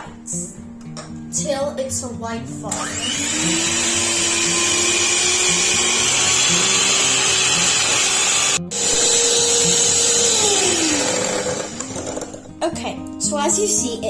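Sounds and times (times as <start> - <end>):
electric mixer whining: 2.7 - 12.5.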